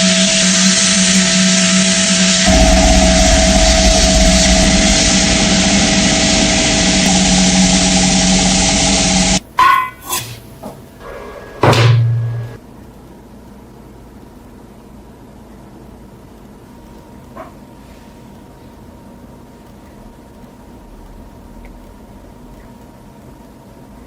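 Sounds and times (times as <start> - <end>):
brief low hum: 0.0 - 9.4
power tool running: 0.0 - 9.4.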